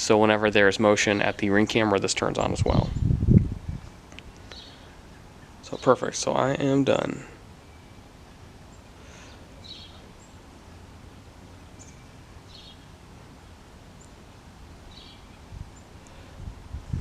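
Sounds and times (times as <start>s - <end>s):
low steady background noise: 0.0s - 17.0s
faint high bird chirps: 7.6s - 10.9s, 11.6s - 12.9s, 14.9s - 16.0s.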